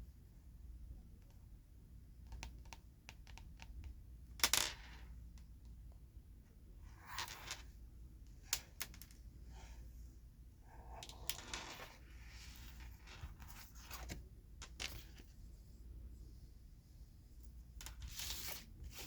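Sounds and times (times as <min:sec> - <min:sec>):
soft rustling of cards: 0:06.8 - 0:19.0.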